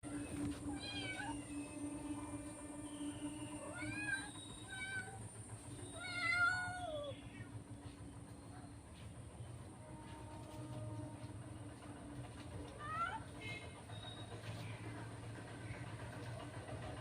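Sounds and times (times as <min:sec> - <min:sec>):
steady low hum: 0:00.0 - 0:17.0
cat meowing: 0:00.8 - 0:01.4.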